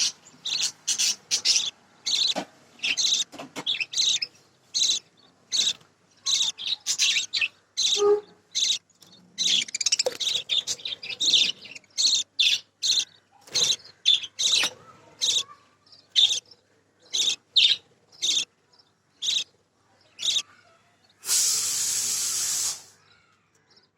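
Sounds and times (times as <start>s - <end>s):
budgies chirping: 0.0s - 23.9s
steady hiss: 21.2s - 23.0s.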